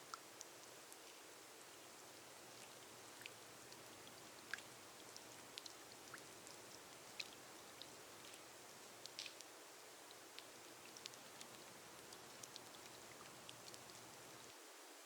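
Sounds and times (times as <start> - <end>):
gentle rain on a glass roof: 0.0 - 15.0
raindrops ticking: 2.0 - 9.5, 10.1 - 14.5.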